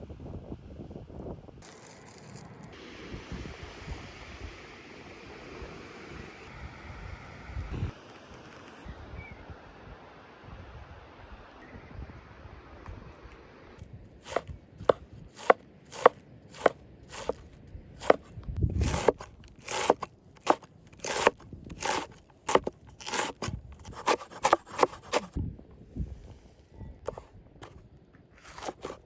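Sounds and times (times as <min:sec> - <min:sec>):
knife chopping on cutting board: 0:14.3 - 0:17.4, 0:18.0 - 0:25.4, 0:28.4 - 0:29.0.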